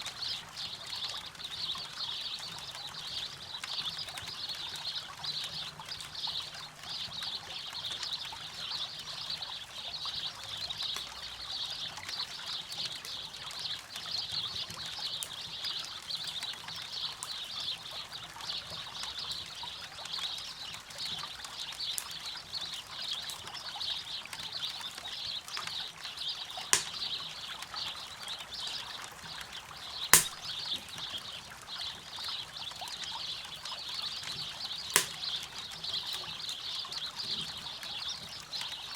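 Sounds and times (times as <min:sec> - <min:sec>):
campfire crackling pops: 0:26.8 - 0:27.2, 0:30.2 - 0:31.0, 0:35.0 - 0:35.4.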